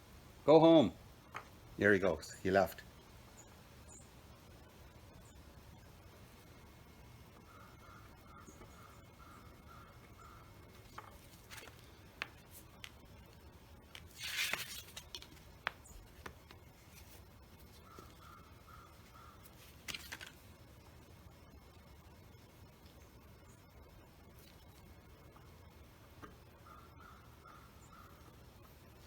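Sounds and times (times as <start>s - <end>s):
repeated animal calls: 7.4s - 10.8s, 17.6s - 19.6s, 26.4s - 28.4s
tools scraping and rustling: 14.0s - 15.4s.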